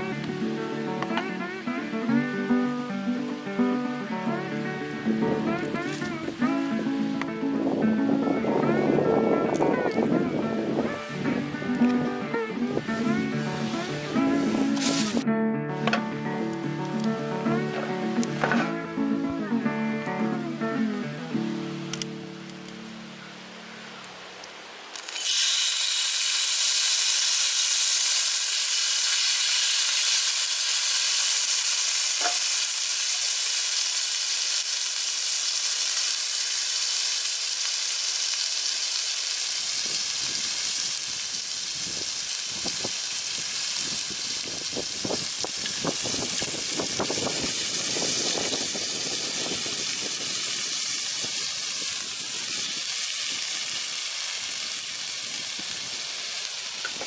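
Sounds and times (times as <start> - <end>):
food sizzling in a pan: 8.5 - 15.2, 24.9 - 57.0.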